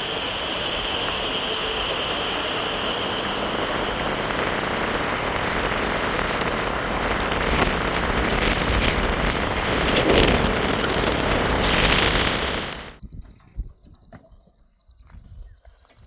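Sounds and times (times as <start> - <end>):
fast river water rushing: 2.4 - 13.0.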